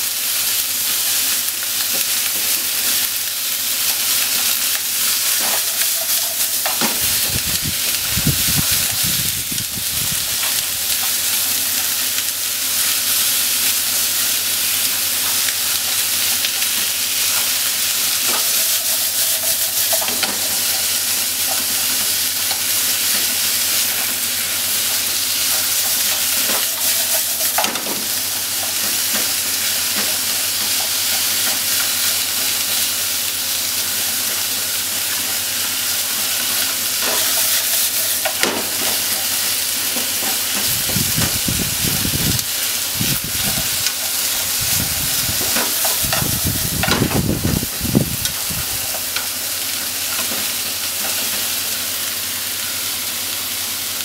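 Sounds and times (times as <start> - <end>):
meat and onion sizzling in pan: 0.0 - 54.0.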